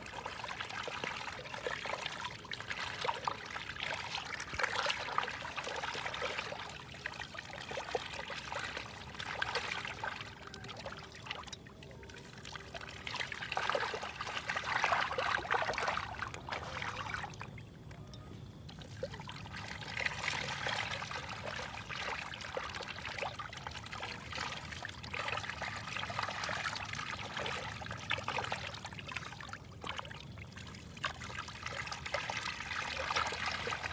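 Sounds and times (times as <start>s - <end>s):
fish splashing at water surface: 0.0s - 17.6s.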